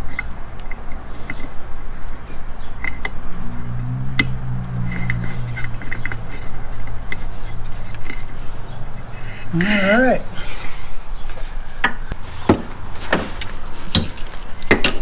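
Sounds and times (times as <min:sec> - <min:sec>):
low drone: 0:03.0 - 0:09.6
steady low hum: 0:03.0 - 0:09.6.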